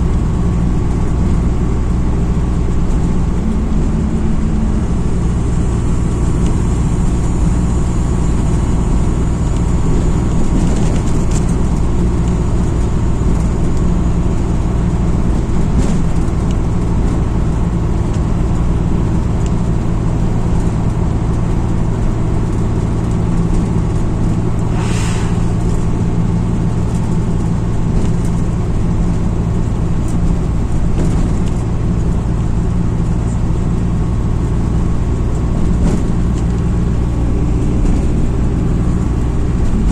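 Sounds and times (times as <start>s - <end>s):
bus engine and road noise: 0.0s - 39.9s
short hiss: 24.6s - 26.7s.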